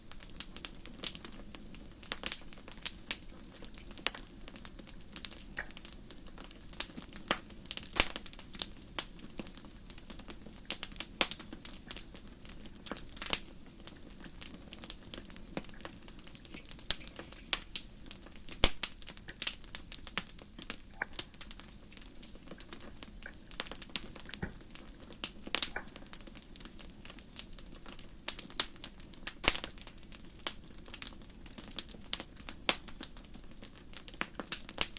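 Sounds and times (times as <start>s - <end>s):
wood fire crackling: 0.0s - 34.9s.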